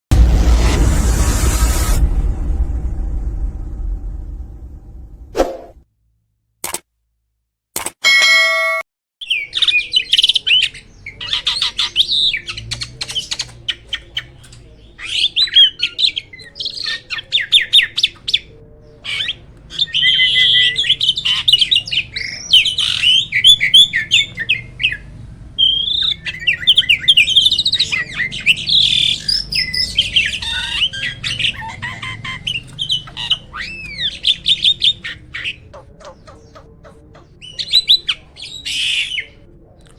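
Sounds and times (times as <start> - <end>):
starling singing: 9.2 - 39.5.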